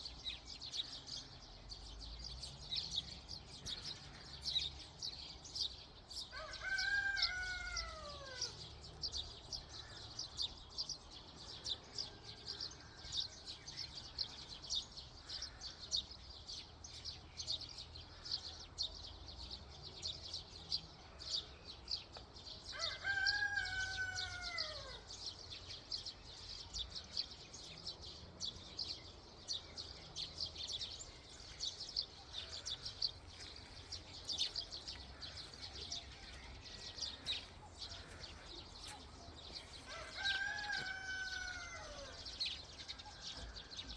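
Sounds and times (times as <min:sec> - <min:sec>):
songbirds chirping: 0:00.0 - 0:43.9
rooster crowing: 0:06.3 - 0:08.5, 0:22.7 - 0:25.0, 0:39.8 - 0:42.3.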